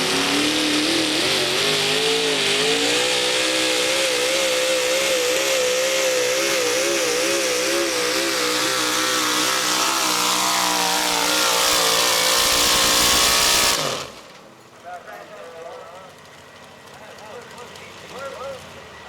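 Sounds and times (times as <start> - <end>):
truck engine at full throttle: 0.0 - 14.6.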